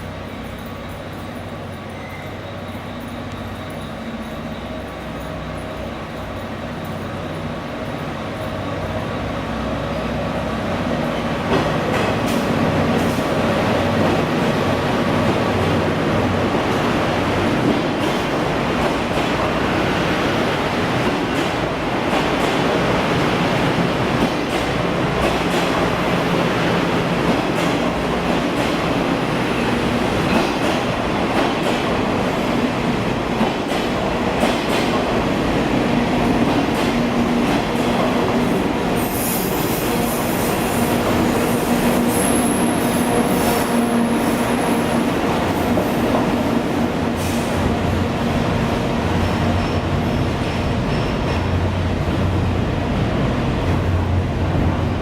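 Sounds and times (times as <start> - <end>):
train wheels rumbling on rail: 0.0 - 55.0
high wheel squeal: 0.7 - 9.4, 39.0 - 45.2
thin high whistle: 1.5 - 6.4.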